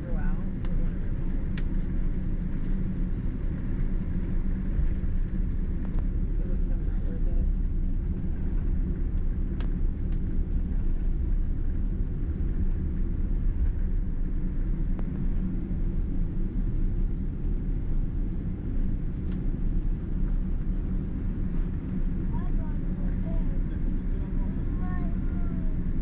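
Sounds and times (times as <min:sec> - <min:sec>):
low rumble in aircraft cabin: 0:00.0 - 0:26.0.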